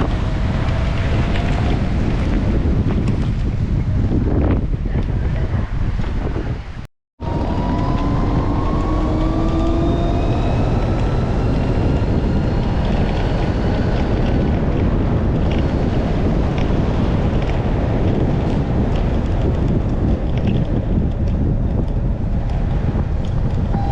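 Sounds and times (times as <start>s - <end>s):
wind buffeting microphone: 0.0s - 23.9s
engine rising in pitch: 7.2s - 14.7s.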